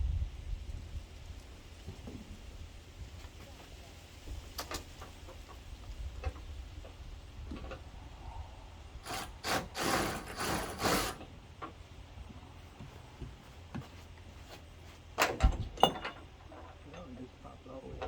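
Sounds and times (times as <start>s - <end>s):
loud rasping scrapes: 9.0s - 11.3s.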